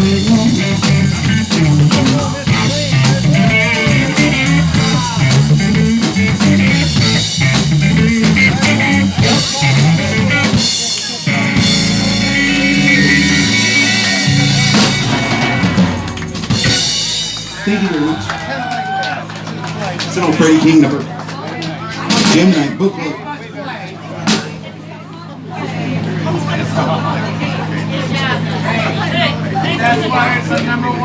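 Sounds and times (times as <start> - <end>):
blues band playing: 0.0 - 20.9, 22.0 - 22.9.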